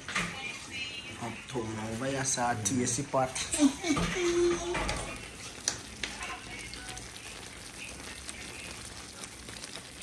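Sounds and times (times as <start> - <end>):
food sizzling in a frying pan: 0.0 - 10.0
spoon clicking against pan: 5.6 - 6.2.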